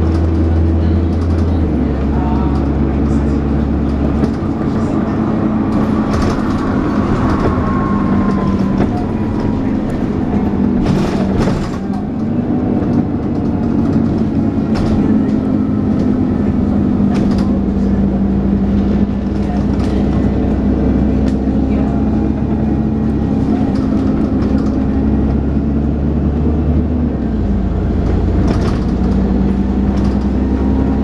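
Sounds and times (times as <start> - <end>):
bus engine whining: 0.0 - 31.0
body rattles and knocks: 3.7 - 25.6, 28.0 - 30.6.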